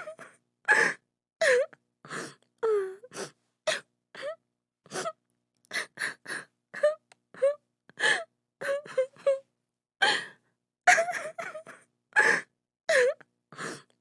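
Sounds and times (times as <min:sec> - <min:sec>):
woman sobbing: 0:06.8 - 0:09.4, 0:10.9 - 0:13.2.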